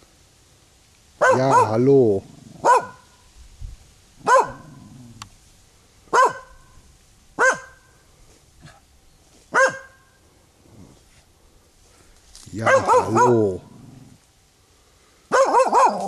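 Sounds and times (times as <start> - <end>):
dog barking: 1.2 - 1.9, 2.6 - 3.2, 4.2 - 4.8, 6.1 - 6.8, 7.4 - 7.9, 9.5 - 10.1, 12.6 - 13.7, 15.3 - 16.0.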